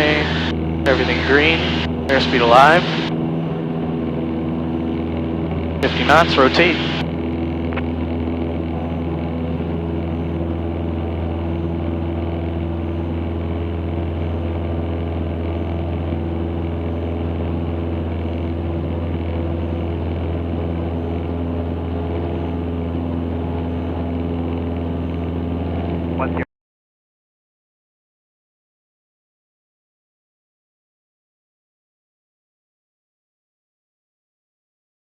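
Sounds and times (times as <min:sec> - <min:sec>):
aircraft engine and propeller: 0:00.0 - 0:26.4.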